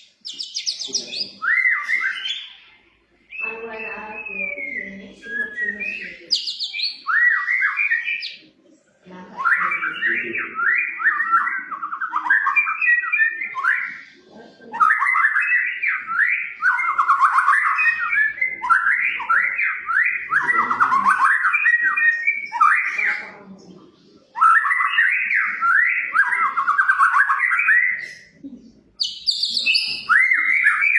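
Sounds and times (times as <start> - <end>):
songbird warbling whistled phrases: 0.2 - 2.6, 3.3 - 8.5, 14.8 - 23.3, 24.3 - 28.4, 29.0 - 30.9.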